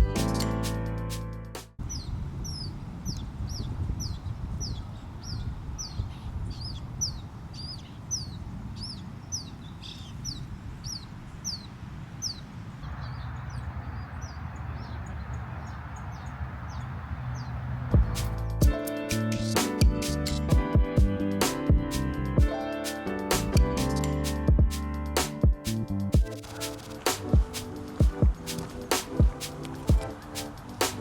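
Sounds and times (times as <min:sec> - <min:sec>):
bird chirping: 0:01.8 - 0:18.6
low outdoor rumble: 0:10.6 - 0:18.7.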